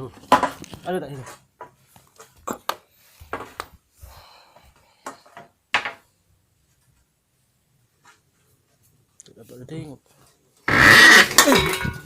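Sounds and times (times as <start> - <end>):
hard objects knocking: 10.7 - 12.0.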